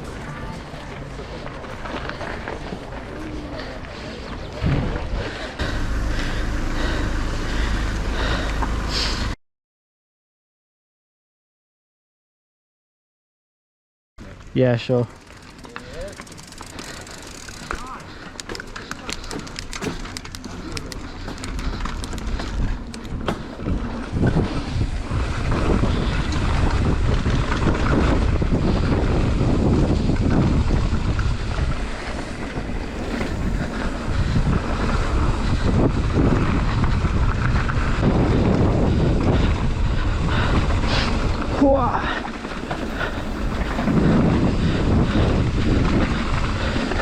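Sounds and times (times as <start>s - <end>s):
bike clicks and rattles: 0.0s - 9.2s, 14.2s - 47.0s
wind buffeting microphone: 0.0s - 9.4s, 19.1s - 47.0s
tyre rumble: 15.2s - 47.0s.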